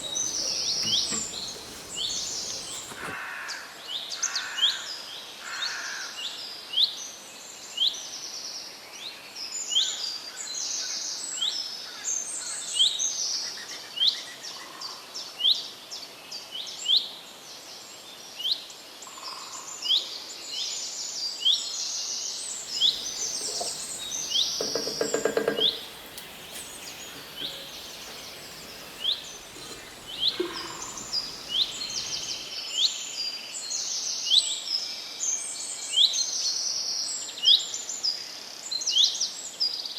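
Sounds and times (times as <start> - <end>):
small birds chirping: 0.0 - 3.2, 22.6 - 32.5.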